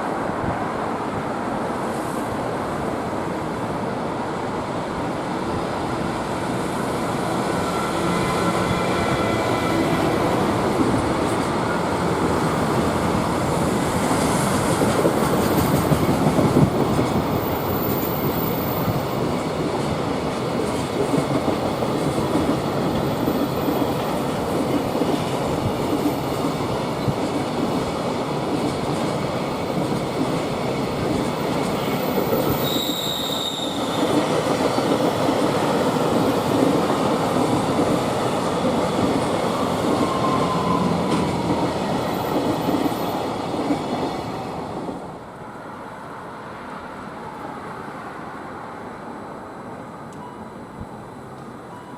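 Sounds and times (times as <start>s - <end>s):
freight train wheels on rails: 0.0s - 48.5s
high squeal: 32.0s - 34.1s, 40.0s - 41.1s.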